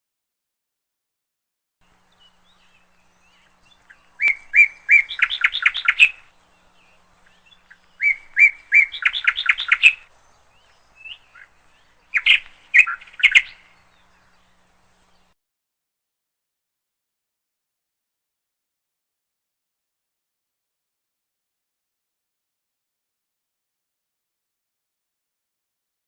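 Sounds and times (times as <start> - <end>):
songbird singing: 1.8 - 15.4.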